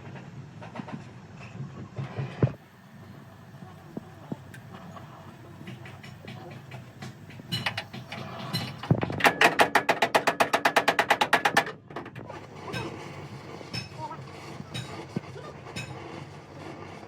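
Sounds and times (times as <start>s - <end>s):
rapid sharp knocks: 5.7s - 11.7s.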